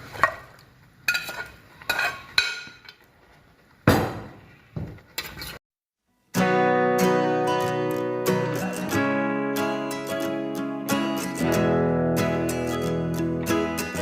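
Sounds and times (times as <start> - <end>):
metal spoon clinking on pan: 1.1 - 3.0
acoustic guitar music: 6.2 - 14.0.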